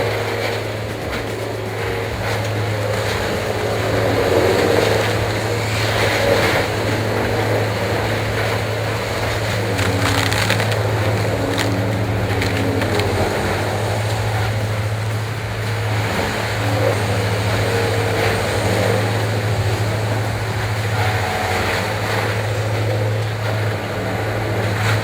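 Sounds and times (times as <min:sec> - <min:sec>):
engine drone: 0:00.0 - 0:25.0
wood being ground up: 0:09.2 - 0:13.6.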